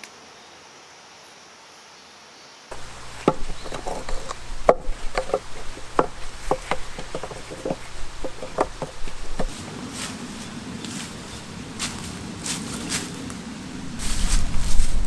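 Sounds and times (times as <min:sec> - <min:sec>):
sharp woody cracks and knocks: 0:02.7 - 0:09.5
steady low hum: 0:02.7 - 0:12.4.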